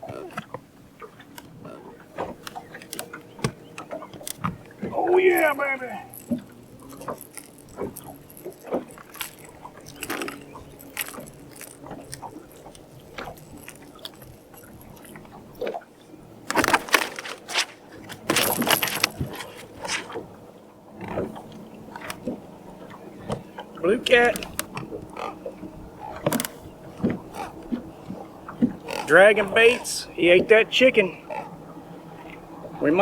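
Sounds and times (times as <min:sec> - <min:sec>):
fish handling clicks and knocks: 0:00.0 - 0:33.0
rustling scraping bursts: 0:01.5 - 0:15.8, 0:16.4 - 0:20.3.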